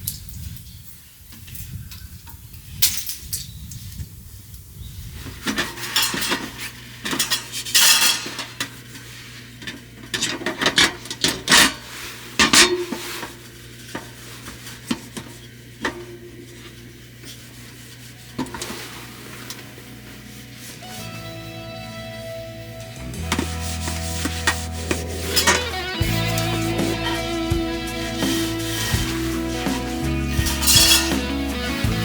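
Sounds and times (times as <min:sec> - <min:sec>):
cutlery and cookware clinking: 0:07.1 - 0:08.6, 0:30.5 - 0:31.5.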